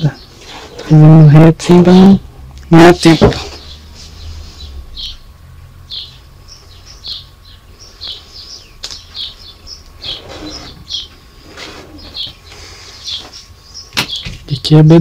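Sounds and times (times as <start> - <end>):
small birds chirping: 0.0 - 15.0
pencil scratching along ruler: 10.0 - 10.8.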